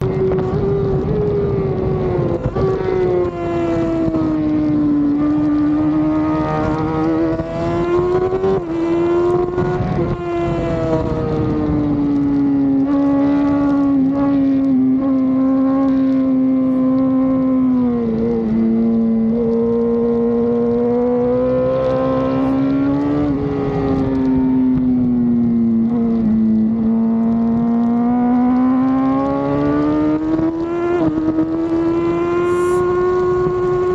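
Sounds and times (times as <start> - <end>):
racing motorcycle engine revving: 0.0 - 33.9.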